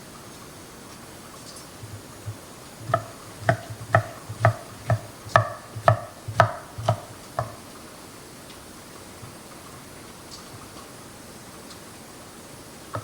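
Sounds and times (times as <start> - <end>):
utensil tapping a ringing dish: 2.8 - 7.6.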